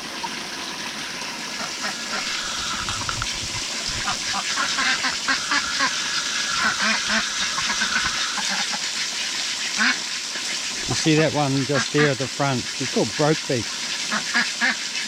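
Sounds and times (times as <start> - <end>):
ducks quacking: 4.0 - 8.8, 9.8 - 10.0, 10.9 - 12.6.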